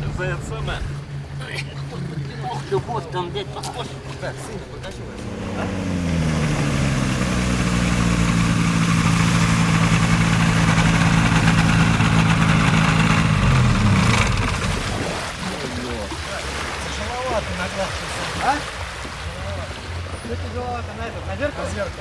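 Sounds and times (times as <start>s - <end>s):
aircraft engine revving: 0.0s - 15.7s.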